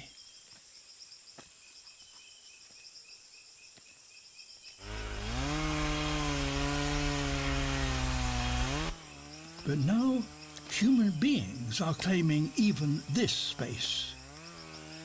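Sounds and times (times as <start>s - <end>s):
faint insect calls: 0.0s - 5.1s, 8.9s - 15.0s
chainsaw running: 4.8s - 15.0s.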